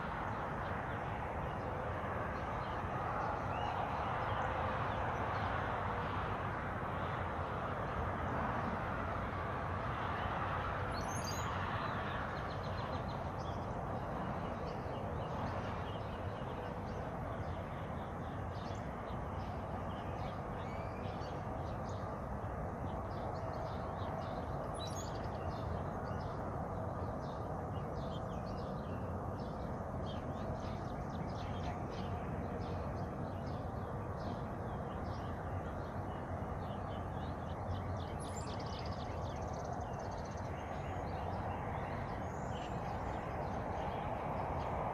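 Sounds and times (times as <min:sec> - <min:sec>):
steady rushing noise: 0:00.0 - 0:44.9
small birds chirping: 0:10.9 - 0:44.9.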